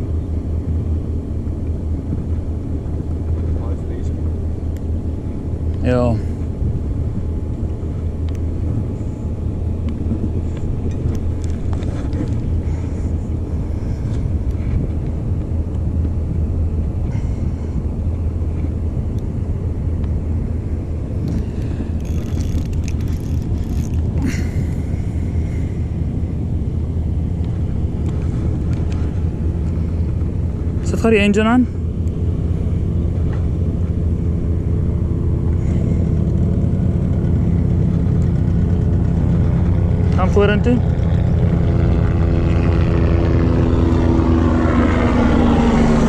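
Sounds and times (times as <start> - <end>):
boat engine rumbling: 0.0 - 46.0
water noise: 0.0 - 46.0
wind: 0.0 - 46.0
faint clicks and knocks: 21.2 - 24.2.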